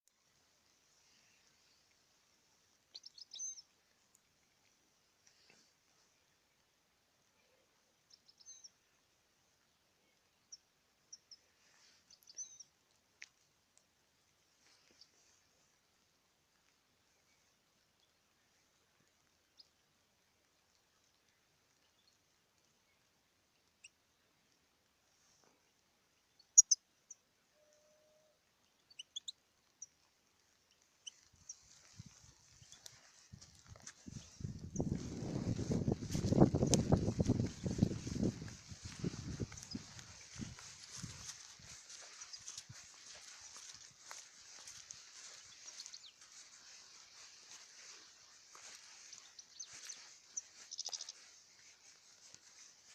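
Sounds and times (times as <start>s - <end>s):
faint hiss: 0.1s - 52.9s
bird chirps and twitters: 48.8s - 51.3s.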